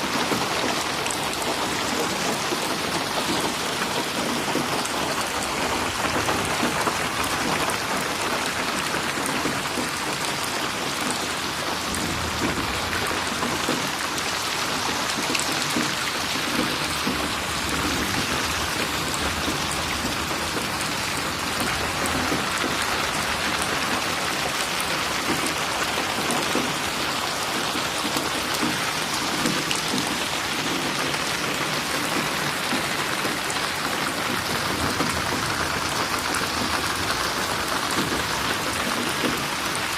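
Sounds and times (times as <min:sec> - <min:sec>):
rain falling: 0:00.0 - 0:39.9
raindrops spattering on surface: 0:00.0 - 0:39.9.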